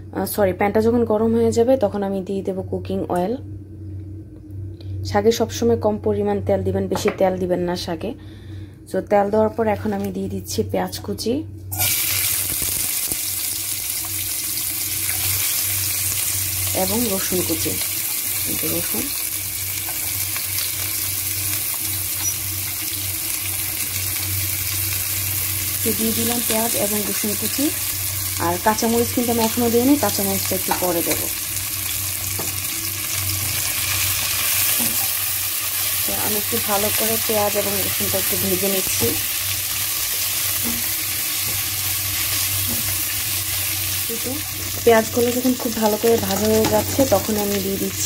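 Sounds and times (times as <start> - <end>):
low steady hum: 0.0 - 48.0
onion sizzling in hot oil: 11.7 - 48.0.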